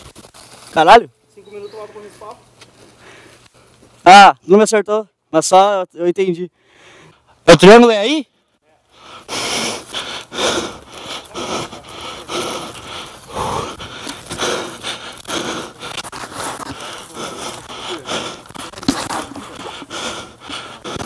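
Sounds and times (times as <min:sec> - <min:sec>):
person breathing hard: 0:03.0 - 0:03.4, 0:06.6 - 0:07.3, 0:08.9 - 0:21.0.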